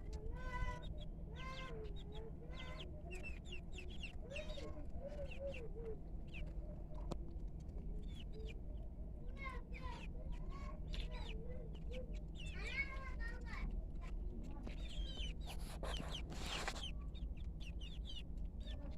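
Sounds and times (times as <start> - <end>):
chickens clucking: 14.1 - 18.5.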